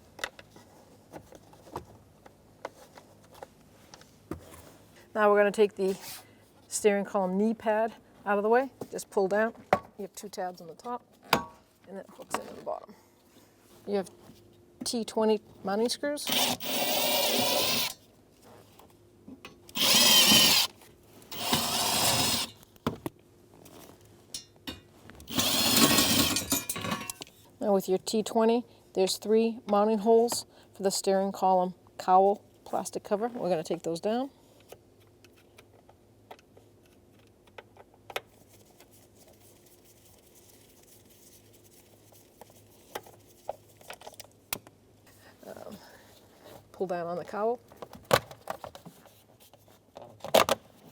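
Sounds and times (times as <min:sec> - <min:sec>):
cordless drill running: 0:16.3 - 0:18.0, 0:19.7 - 0:20.7, 0:21.3 - 0:22.5, 0:25.3 - 0:26.4.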